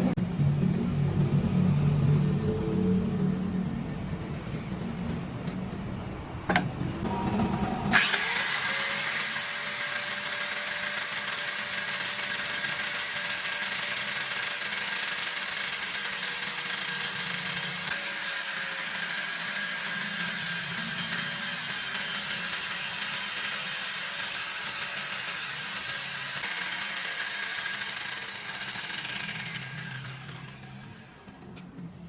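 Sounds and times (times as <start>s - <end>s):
power cutting machine running: 6.8s - 31.6s.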